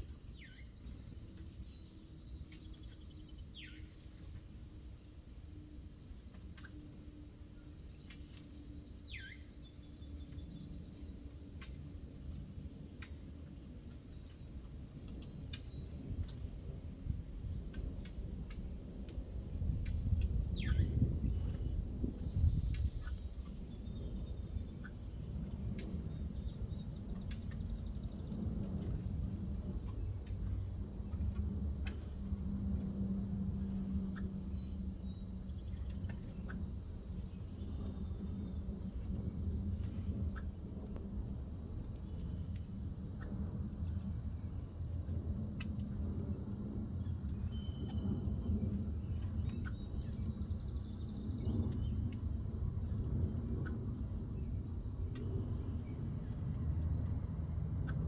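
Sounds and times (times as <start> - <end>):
bird chirps: 0.0 - 4.4, 7.6 - 11.3.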